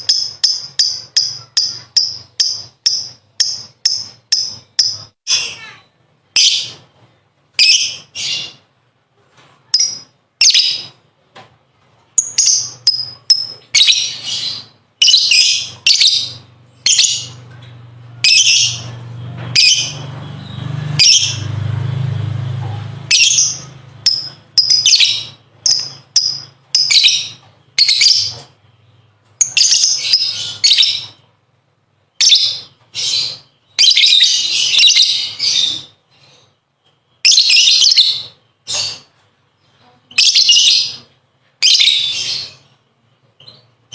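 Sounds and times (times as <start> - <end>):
lovebird chattering: 0.0 - 5.7, 12.2 - 17.4, 23.0 - 28.5, 40.1 - 42.7.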